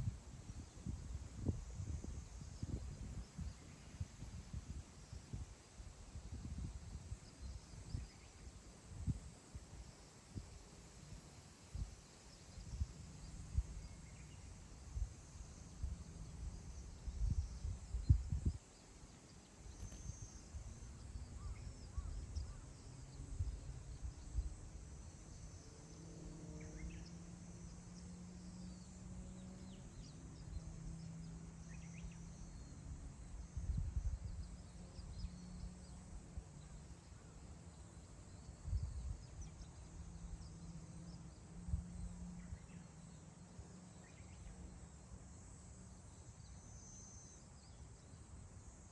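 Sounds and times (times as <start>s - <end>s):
wind buffeting microphone: 0.0s - 8.2s, 15.8s - 18.6s
faint low drone: 19.7s - 48.9s.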